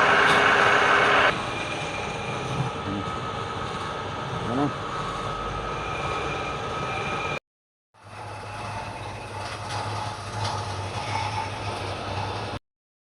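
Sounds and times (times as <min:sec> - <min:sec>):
machine running with whining hum: 0:00.0 - 0:07.4, 0:08.0 - 0:12.6.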